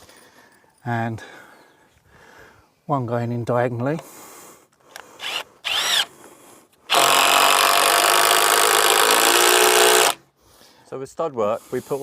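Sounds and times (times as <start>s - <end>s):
power drill driving into timber: 5.2s - 6.1s, 6.9s - 10.2s.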